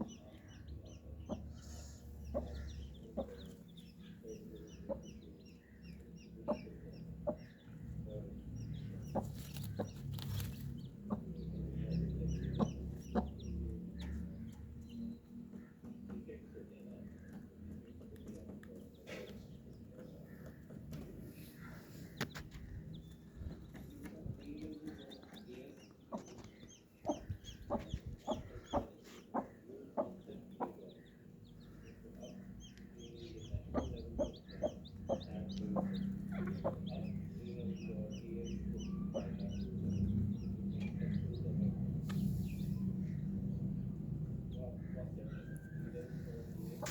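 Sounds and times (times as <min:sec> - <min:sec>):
hen clucking: 0:00.0 - 0:14.3, 0:20.0 - 0:41.4
chicks peeping: 0:00.0 - 0:46.9.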